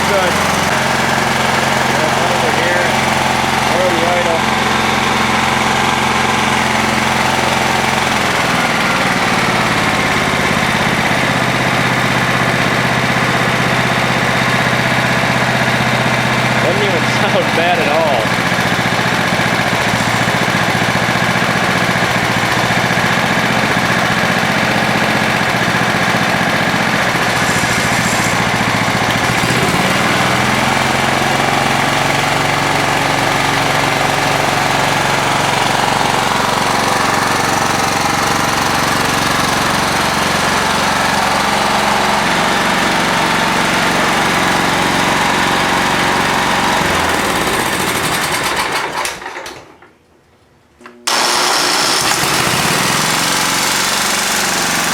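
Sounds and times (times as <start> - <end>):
engine knocking: 0.0 - 49.4, 51.1 - 54.9
riding mower engine running: 0.0 - 49.8, 51.0 - 54.9.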